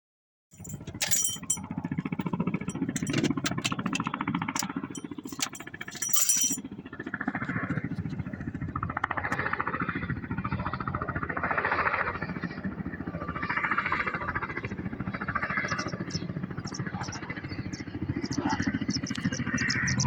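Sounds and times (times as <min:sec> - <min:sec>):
helicopter rotor blades beating: 0:00.5 - 0:20.0.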